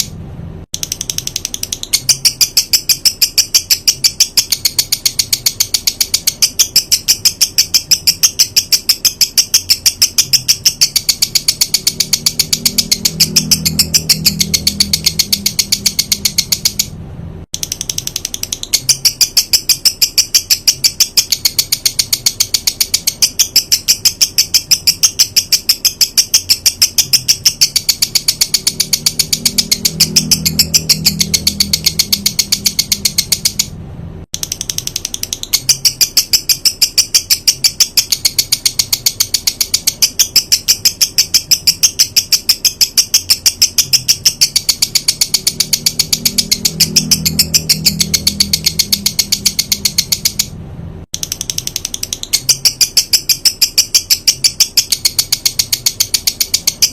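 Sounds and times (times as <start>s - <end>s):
songbird rattling call: 17.6s - 33.7s, 34.4s - 50.5s.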